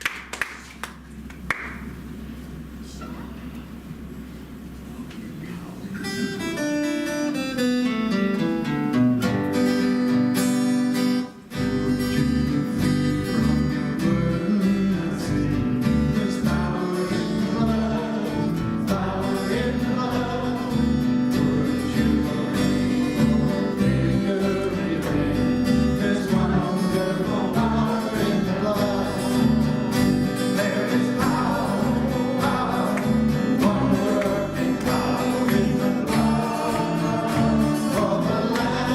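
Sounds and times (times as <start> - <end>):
worship band music: 5.5 - 38.9.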